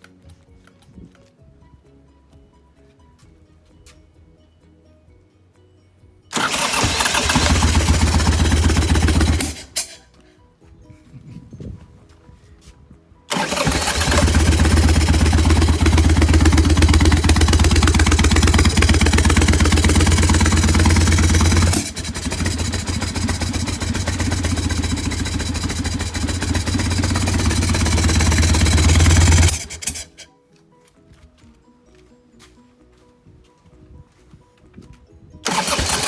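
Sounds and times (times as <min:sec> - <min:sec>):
motorcycle engine throbbing: 0:06.3 - 0:10.0, 0:13.3 - 0:30.2, 0:35.4 - 0:36.0.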